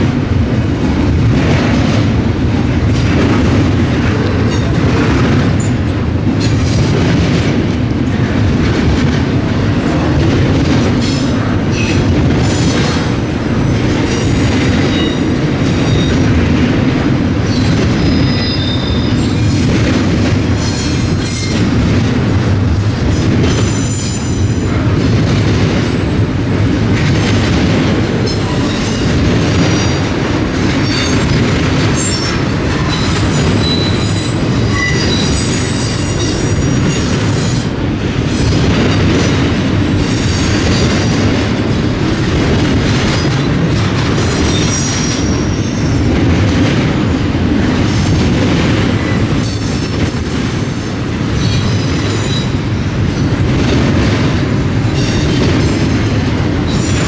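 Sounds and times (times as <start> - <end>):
train wheels rumbling on rail: 0.0 - 57.0
high-pitched wheel squeals: 32.0 - 37.2.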